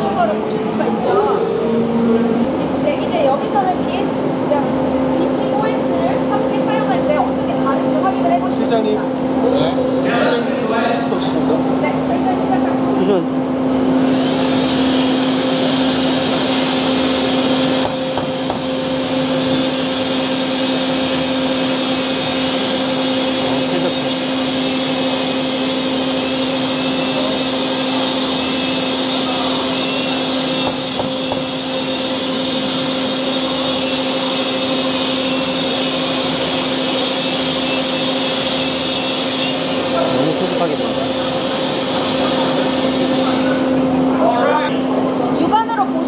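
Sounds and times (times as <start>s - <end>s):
high-pitched whine: 0.0s - 45.8s
dust extractor: 14.0s - 43.6s
angle grinder grinding concrete: 14.1s - 43.5s.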